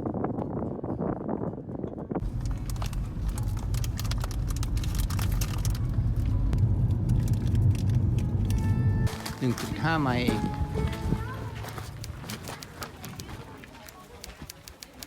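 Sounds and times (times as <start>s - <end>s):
car road and engine rumble: 2.2s - 13.8s.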